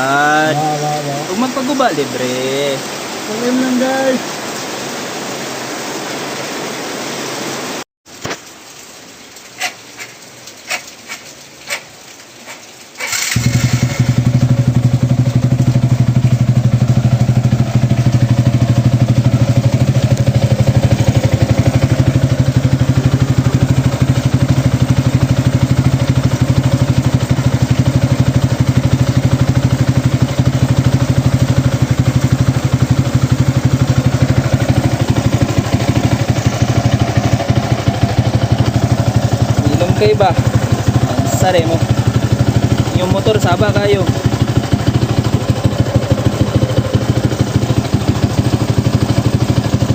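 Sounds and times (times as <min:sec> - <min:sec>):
motorcycle engine running: 0:13.1 - 0:49.9.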